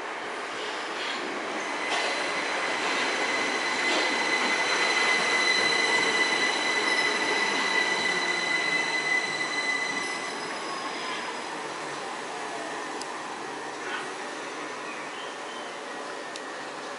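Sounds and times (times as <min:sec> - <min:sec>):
train wheels rumbling on rail: 0:00.0 - 0:14.9
high-pitched squeal: 0:01.7 - 0:11.5.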